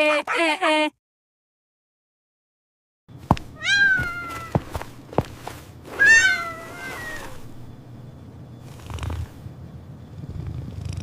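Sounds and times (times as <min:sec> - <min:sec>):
kitten meowing: 0:03.6 - 0:04.6, 0:06.0 - 0:07.4.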